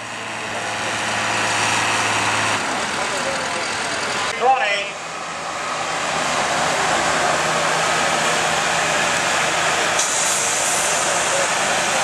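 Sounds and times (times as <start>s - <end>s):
tractor engine at full throttle: 0.0s - 12.0s
bright hiss: 10.0s - 11.5s.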